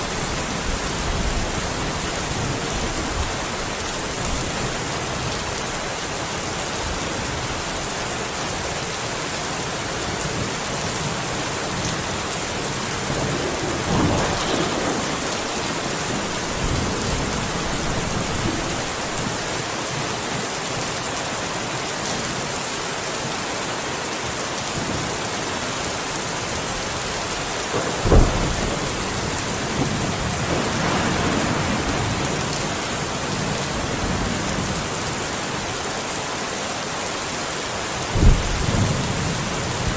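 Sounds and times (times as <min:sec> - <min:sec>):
steady rain falling: 0:00.0 - 0:39.9
thunder rumbling and cracking: 0:10.4 - 0:19.6, 0:26.6 - 0:35.0, 0:38.1 - 0:39.9.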